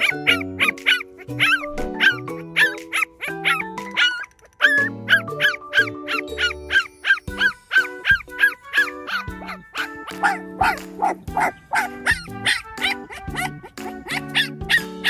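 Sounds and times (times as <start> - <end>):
background music: 0.0 - 15.0
puppy yelping cries: 0.0 - 15.0.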